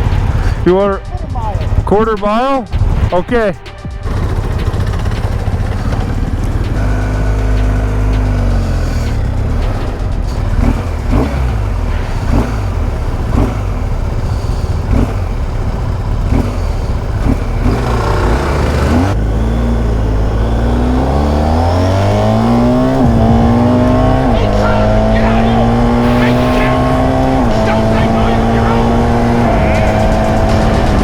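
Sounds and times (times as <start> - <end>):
motorcycle accelerating through gears: 0.0 - 0.7, 4.0 - 31.0
loud rush: 20.3 - 31.0.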